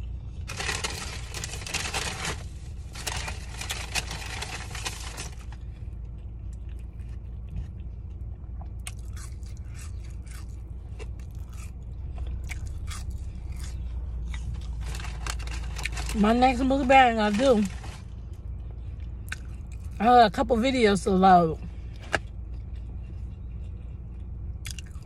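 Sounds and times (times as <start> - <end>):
low hum: 0.0 - 25.0
rustling: 0.5 - 5.6
person chewing: 6.2 - 14.8, 18.5 - 20.0, 21.9 - 25.0.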